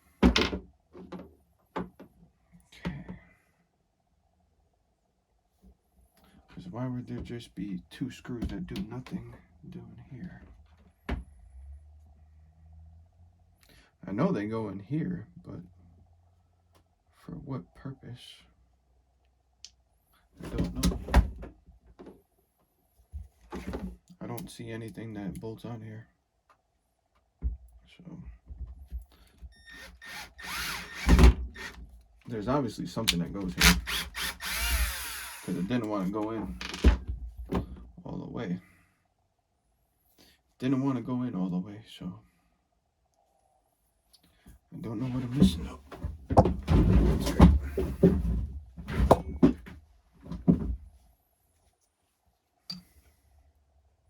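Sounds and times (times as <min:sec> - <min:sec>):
power drill motor whine: 0:29.6 - 0:31.8, 0:33.6 - 0:35.7
hard parts knocking and clicking: 0:33.1 - 0:35.7.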